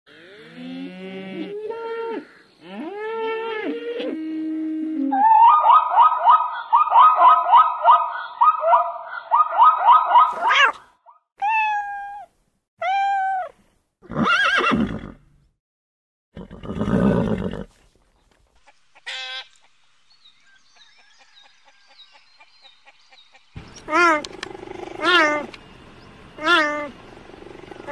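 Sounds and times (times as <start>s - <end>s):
cat meowing: 10.3s - 10.8s, 11.4s - 13.5s
zebras barking: 23.8s - 25.6s, 26.3s - 27.9s.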